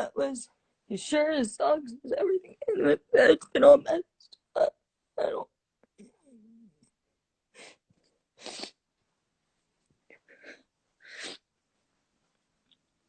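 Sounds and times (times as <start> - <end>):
person sniffing: 8.4 - 8.8, 10.4 - 11.5.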